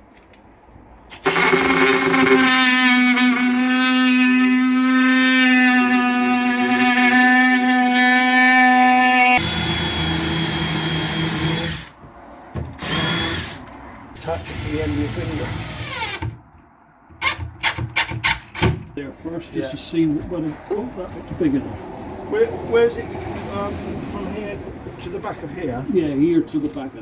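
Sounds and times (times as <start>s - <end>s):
oscillating multi-tool cutting plywood: 1.1s - 12.0s, 12.8s - 16.4s.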